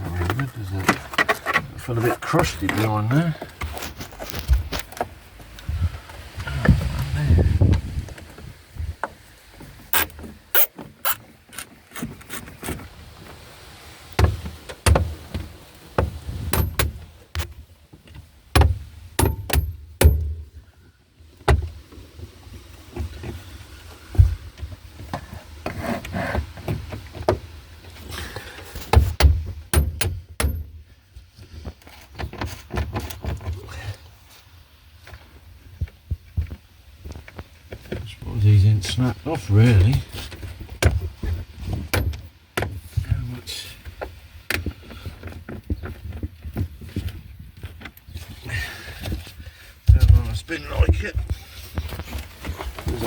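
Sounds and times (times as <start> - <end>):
metallic clicks and scraping of tools: 9.9 - 12.8
dull thumps: 16.0 - 17.6.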